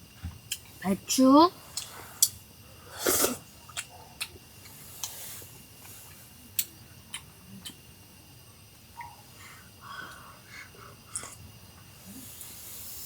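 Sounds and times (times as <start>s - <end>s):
short hissing rush: 1.8s - 3.5s, 4.8s - 6.1s.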